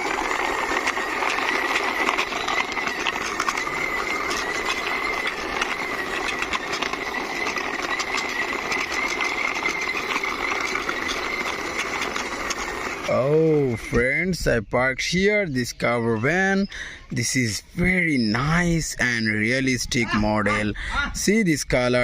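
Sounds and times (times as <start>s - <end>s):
toy wheels rolling rattle: 0.0s - 22.0s.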